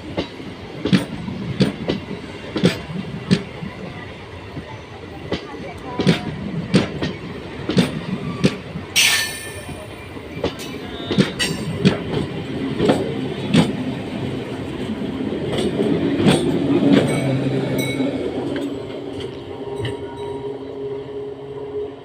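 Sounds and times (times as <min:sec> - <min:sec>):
train rumble: 0:00.0 - 0:22.0
wheels clacking over rail joints: 0:04.5 - 0:20.1.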